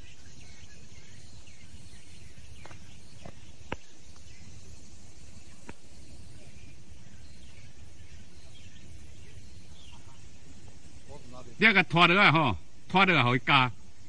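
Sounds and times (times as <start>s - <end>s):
low rumble and hiss: 0.0s - 14.0s.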